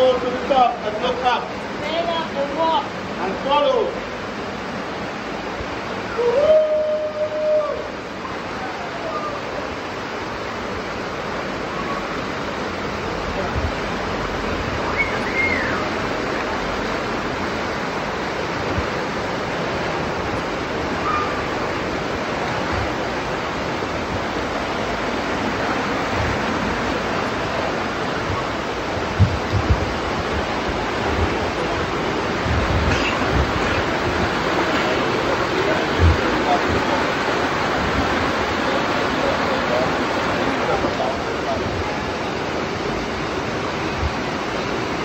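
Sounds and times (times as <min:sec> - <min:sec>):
water cascading over rocks: 0:00.0 - 0:45.0
distant voices calling: 0:14.4 - 0:17.0.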